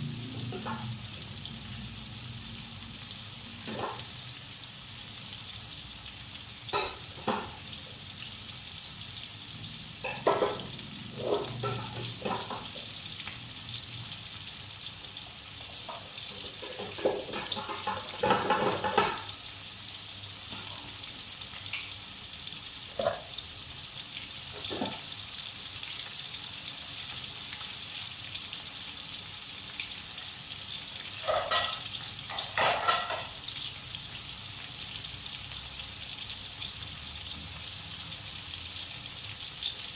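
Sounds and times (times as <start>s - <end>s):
chicken frying in oil: 0.0s - 39.9s
spatula scraping a wok: 10.0s - 12.8s.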